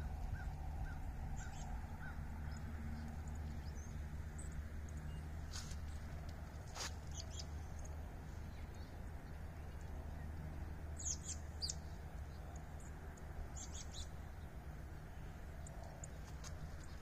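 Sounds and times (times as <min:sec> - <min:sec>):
steady low rumble: 0:00.0 - 0:17.0
small bird chirping: 0:06.7 - 0:10.3, 0:10.9 - 0:14.5.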